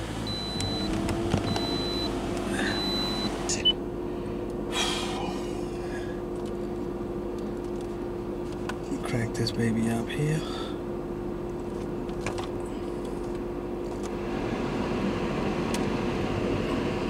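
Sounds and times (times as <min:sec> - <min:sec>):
car engine idling: 0:00.0 - 0:17.0
dashboard chime beeping: 0:00.3 - 0:00.9, 0:01.5 - 0:03.8.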